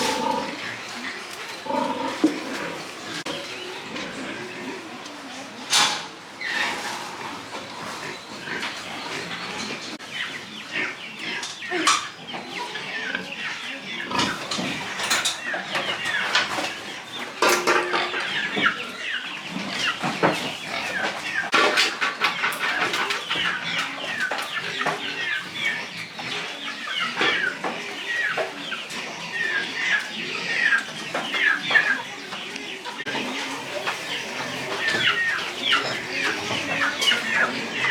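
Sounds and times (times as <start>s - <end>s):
farm animals calling: 0.0s - 37.9s.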